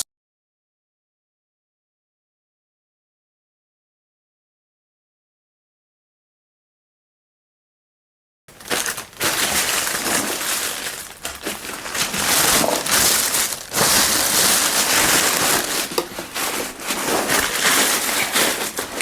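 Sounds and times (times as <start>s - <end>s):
packaging rustling and crinkling: 8.5s - 19.0s.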